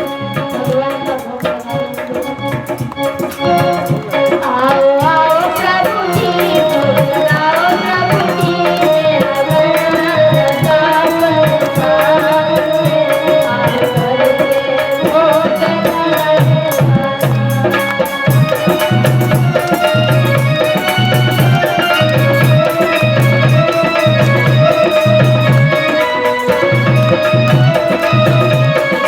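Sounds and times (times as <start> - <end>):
woman singing: 0.0 - 20.8
instrumental accompaniment: 0.0 - 29.0
tabla drumming: 0.0 - 29.0.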